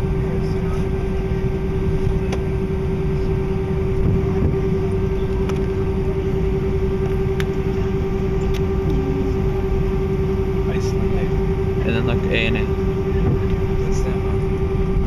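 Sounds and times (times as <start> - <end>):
aircraft cabin low rumble: 0.0 - 15.0
mid-pitched hum: 0.0 - 15.0.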